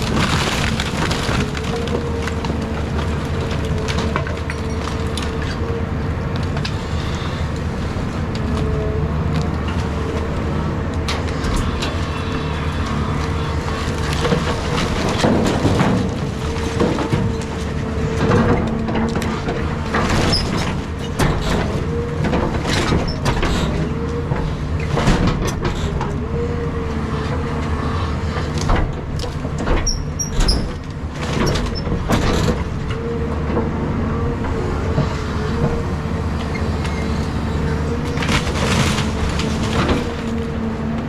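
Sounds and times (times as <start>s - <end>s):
debris cracking and knocking: 0.0s - 5.7s, 11.1s - 23.8s, 36.4s - 40.6s
excavator engine droning: 0.0s - 41.0s
hydraulics whining: 0.0s - 41.0s.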